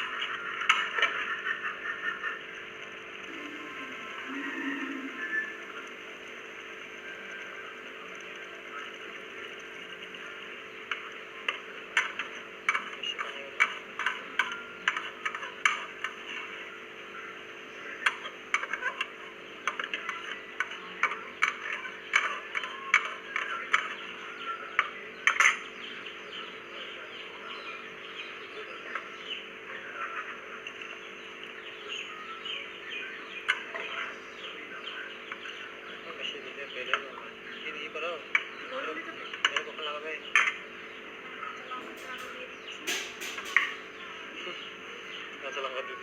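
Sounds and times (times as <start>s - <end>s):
steady hum and hiss: 0.0s - 46.0s
spatula clinking on a pot: 42.9s - 43.8s.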